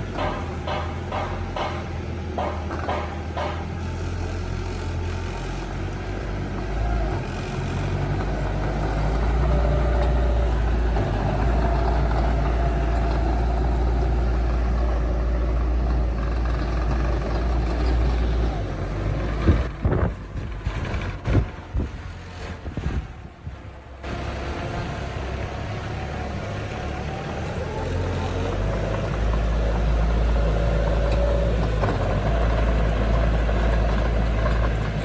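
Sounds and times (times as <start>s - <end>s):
heavy diesel engine running: 0.0s - 35.0s
sharp knocks: 0.1s - 3.7s.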